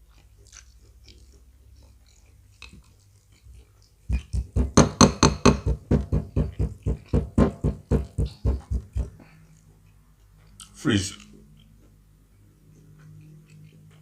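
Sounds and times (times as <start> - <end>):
rapid loud thumps: 4.1 - 9.2.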